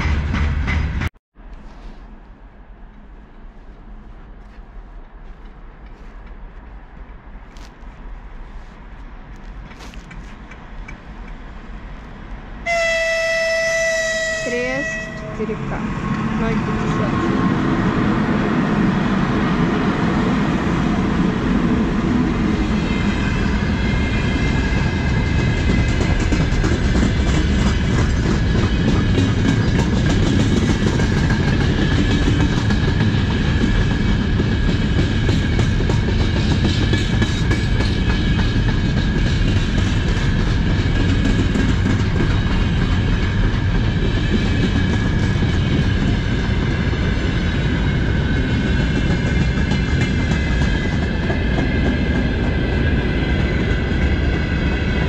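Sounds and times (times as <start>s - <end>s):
freight train rumbling past: 0.0s - 55.0s
wheels clacking over rail joints: 23.4s - 54.8s.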